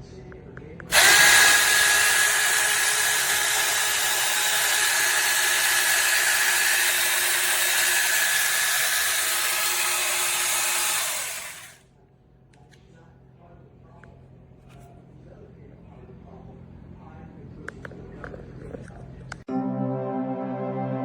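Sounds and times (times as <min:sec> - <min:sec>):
electric pole saw running: 0:00.9 - 0:11.8.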